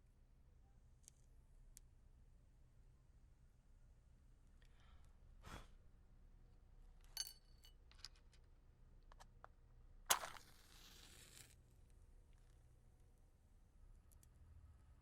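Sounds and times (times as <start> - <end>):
ceramic clink: 7.2 - 7.8
match striking and hissing: 10.1 - 11.6.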